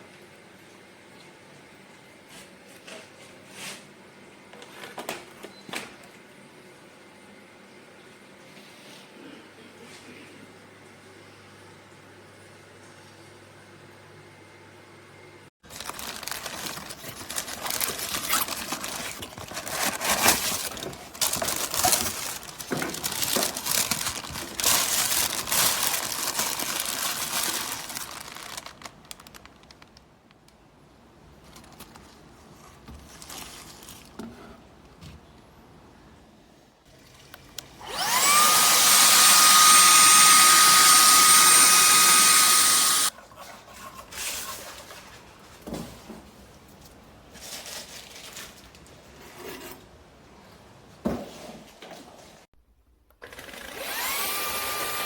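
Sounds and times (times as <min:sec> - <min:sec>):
rustling and clattering handling: 0:15.7 - 0:30.0, 0:31.4 - 0:35.2, 0:44.1 - 0:49.8
vacuum motor whining: 0:37.8 - 0:43.1, 0:53.2 - 0:55.0.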